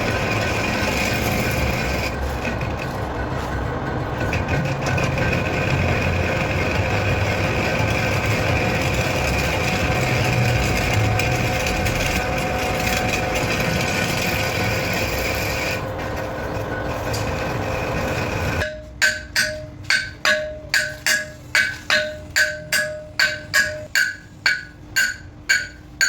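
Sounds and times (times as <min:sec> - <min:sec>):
lathe machinery running: 0:00.0 - 0:26.0
rhythmic ringing percussion beat: 0:18.6 - 0:26.0.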